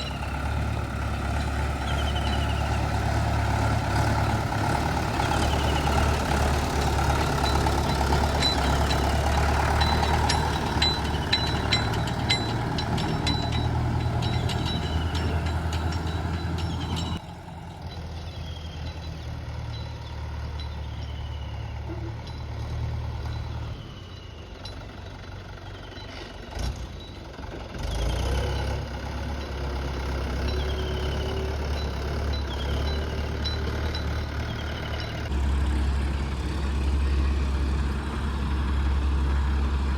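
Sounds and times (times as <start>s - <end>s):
heavy diesel machinery running: 0.0s - 39.9s
high falling chirp: 1.3s - 3.7s.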